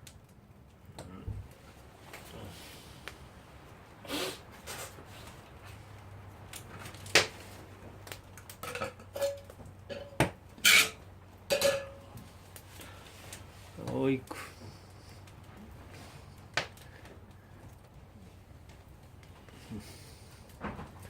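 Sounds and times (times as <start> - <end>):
metal pot and lid clinking: 8.6 - 12.0.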